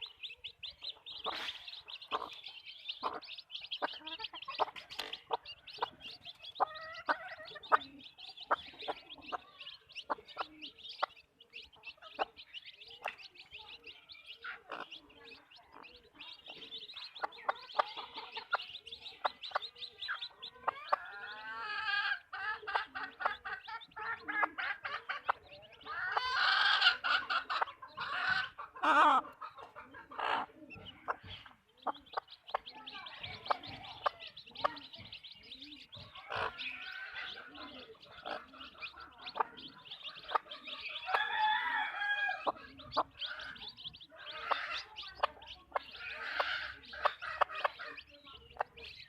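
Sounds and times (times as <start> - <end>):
hens clucking: 0.0 - 49.0.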